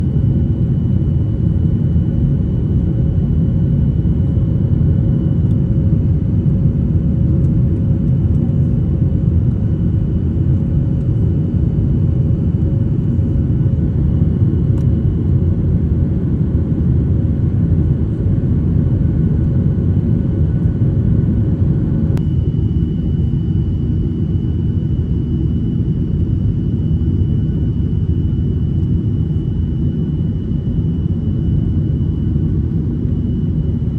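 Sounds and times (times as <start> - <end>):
faint hum: 0.0 - 33.9
jet engine rumble: 0.0 - 33.9
high whine: 22.1 - 33.9.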